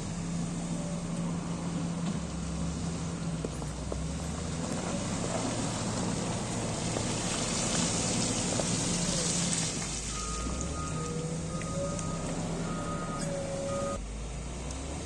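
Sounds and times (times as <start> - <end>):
diesel engine running: 0.0 - 15.0
reversing alarm beeping: 10.1 - 14.0.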